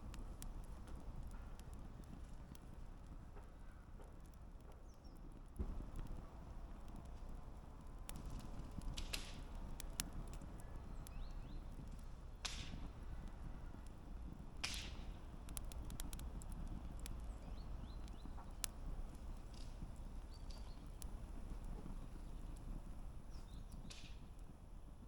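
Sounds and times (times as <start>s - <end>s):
campfire pops and snaps: 0.0s - 25.0s
low rumble of flames: 0.0s - 25.0s
hissing crackles: 5.6s - 25.0s.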